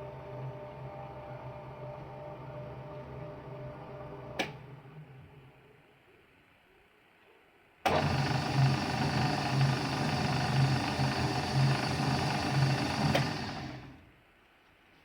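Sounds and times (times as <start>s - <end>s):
food mixer running: 7.9s - 14.1s.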